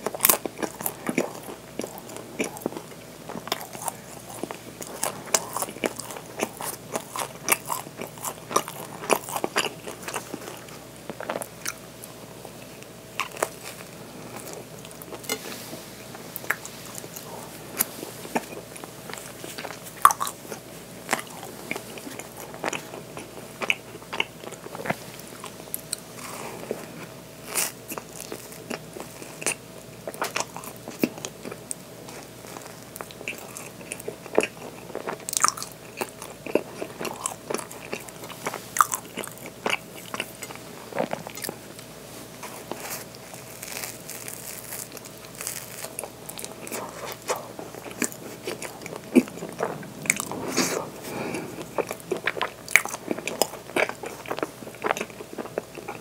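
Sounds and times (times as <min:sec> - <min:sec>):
person chewing bread: 0:00.0 - 0:56.0
crunchy clicks and crackles: 0:25.8 - 0:56.0.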